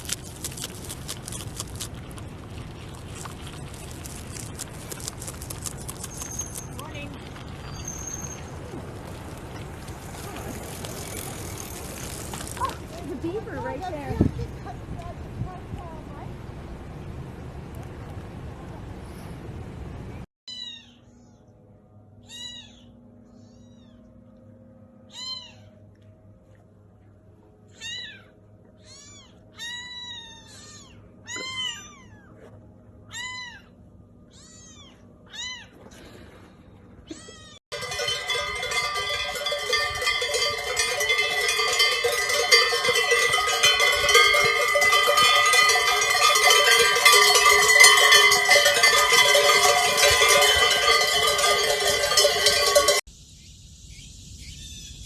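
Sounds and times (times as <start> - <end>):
animal high calls: 22.2 - 24.0, 25.1 - 25.8, 27.7 - 32.3, 33.1 - 35.8
held ringing tones: 37.7 - 53.1.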